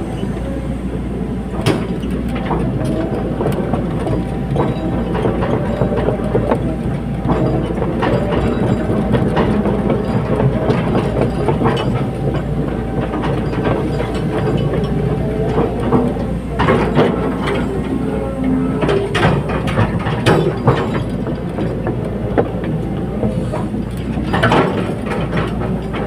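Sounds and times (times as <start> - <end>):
excavator engine drone: 0.0 - 26.0
sharp metal clanks and knocks: 18.8 - 26.0.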